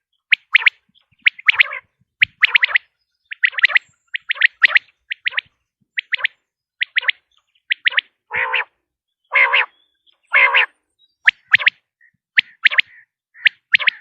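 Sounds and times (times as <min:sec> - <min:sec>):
quail calling: 0:00.0 - 0:14.0.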